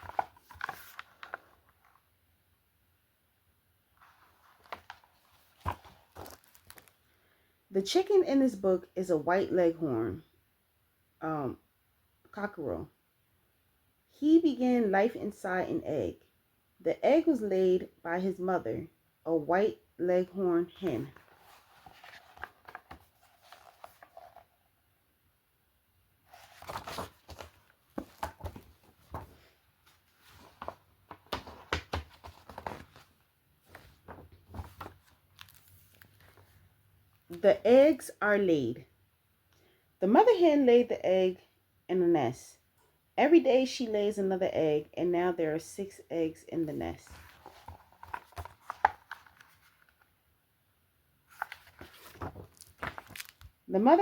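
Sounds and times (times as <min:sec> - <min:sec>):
book pages turning: 0:00.0 - 0:02.0, 0:04.0 - 0:07.0, 0:20.8 - 0:24.7, 0:26.3 - 0:36.6, 0:47.0 - 0:50.2, 0:51.3 - 0:53.6.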